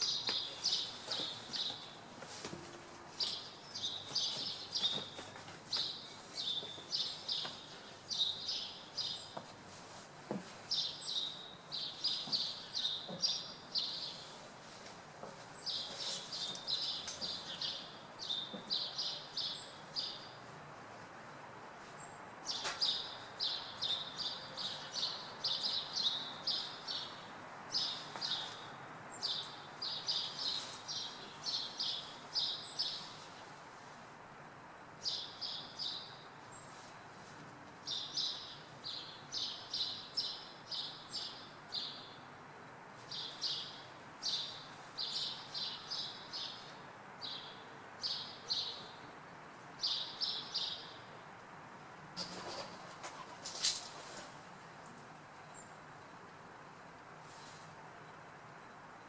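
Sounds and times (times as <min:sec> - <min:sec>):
small birds chirping: 0:00.0 - 0:20.6, 0:21.9 - 0:33.6, 0:34.9 - 0:42.3, 0:43.0 - 0:51.3
town noise hum: 0:00.0 - 0:59.0.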